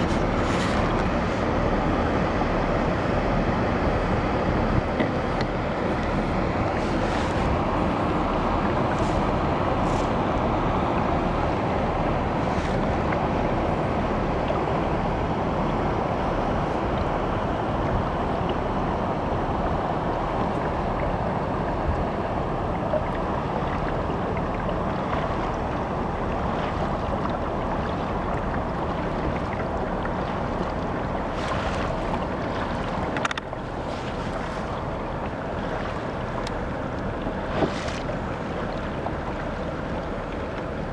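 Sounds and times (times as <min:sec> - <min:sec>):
faint splashes: 0:00.0 - 0:01.5, 0:20.1 - 0:40.9
water rushing past kayak: 0:00.0 - 0:40.9.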